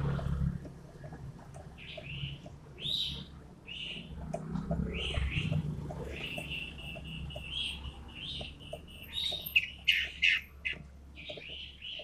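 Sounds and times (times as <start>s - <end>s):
songbird calling: 1.7s - 4.1s, 4.8s - 12.0s.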